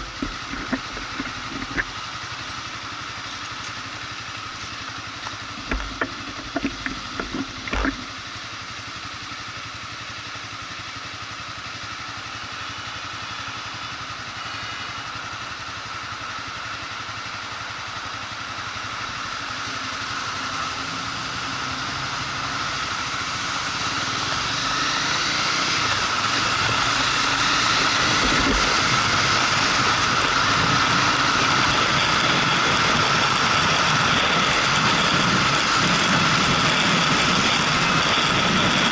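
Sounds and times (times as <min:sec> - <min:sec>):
sharp knocks: 0:00.0 - 0:01.9, 0:05.6 - 0:08.1
motorcycle running: 0:00.0 - 0:38.9.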